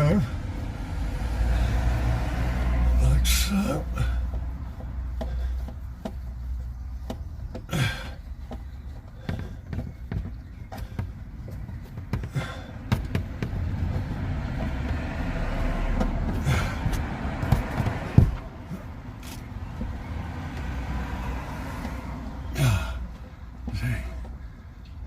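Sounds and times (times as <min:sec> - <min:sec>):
knocks and rubbing: 0:04.2 - 0:22.1.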